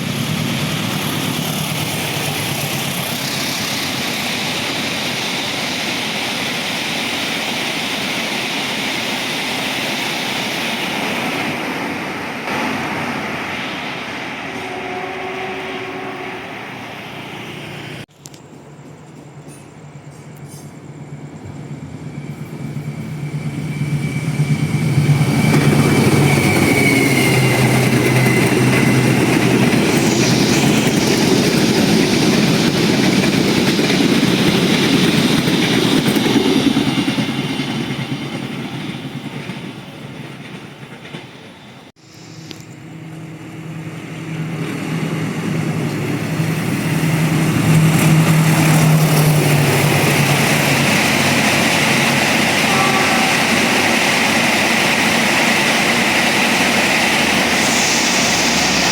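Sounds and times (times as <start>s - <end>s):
wheel-on-rail noise: 21.4s - 58.9s
high squeal: 21.8s - 38.1s, 46.0s - 58.9s.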